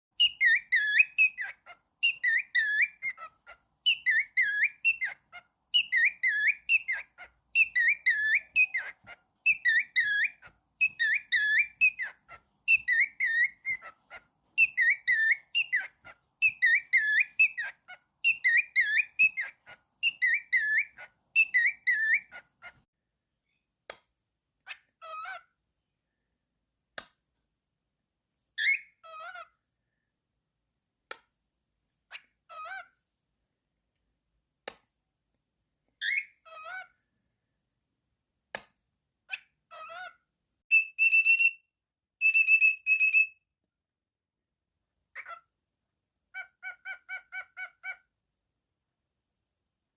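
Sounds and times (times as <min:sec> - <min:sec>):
bird chirps and clicks: 0:00.2 - 0:22.8, 0:42.2 - 0:43.3
cockatiel whistling: 0:00.2 - 0:22.8, 0:36.0 - 0:36.8, 0:40.7 - 0:43.5.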